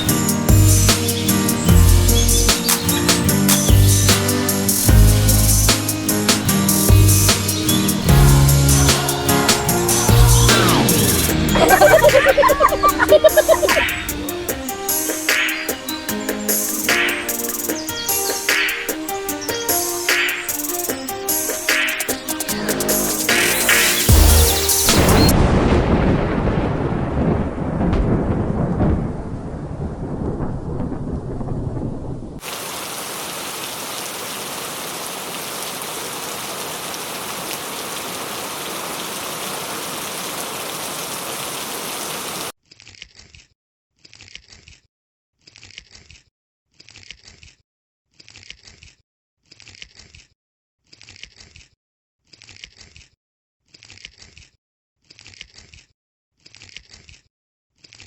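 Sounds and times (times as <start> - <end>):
heavy rain: 6.6 - 14.4, 32.4 - 42.5
thunder rumbling: 25.3 - 32.4.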